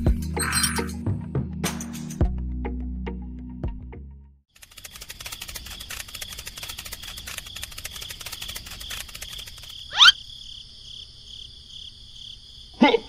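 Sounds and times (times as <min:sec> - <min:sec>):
fast ticking: 0:04.6 - 0:10.0
crickets chirping: 0:04.6 - 0:13.0.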